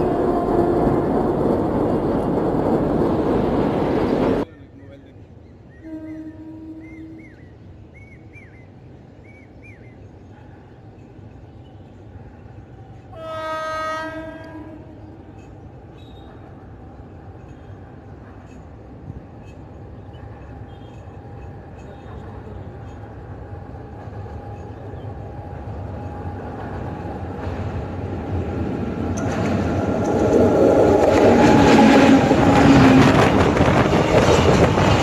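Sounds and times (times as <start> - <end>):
freight train rumbling on rails: 0.0 - 35.0
electric locomotive horn: 5.8 - 7.2, 13.1 - 15.2.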